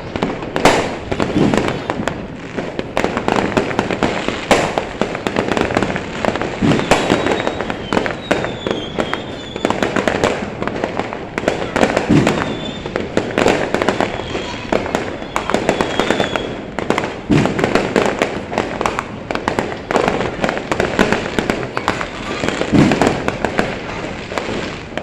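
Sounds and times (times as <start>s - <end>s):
fireworks and firecrackers banging: 0.0s - 25.0s
faint high whistle: 6.7s - 9.9s, 12.4s - 12.9s, 15.2s - 16.7s.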